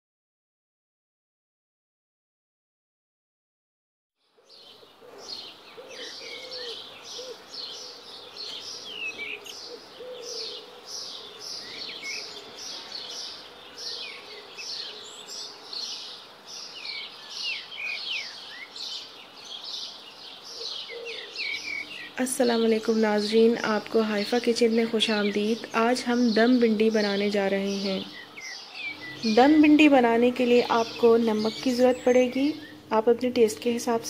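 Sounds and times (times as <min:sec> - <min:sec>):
birds chirping: 0:04.2 - 0:34.0.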